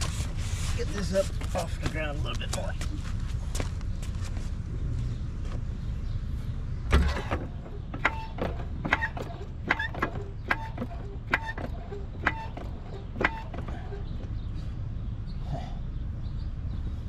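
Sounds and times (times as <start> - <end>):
car jack knock: 6.9 - 14.0
car jack metallic clicks: 6.9 - 14.1.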